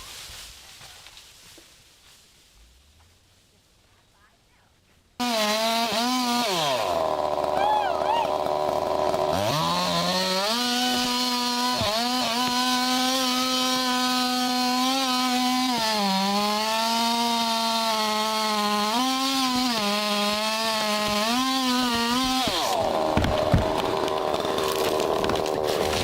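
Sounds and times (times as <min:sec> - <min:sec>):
chainsaw running at high revs: 0:05.2 - 0:26.0.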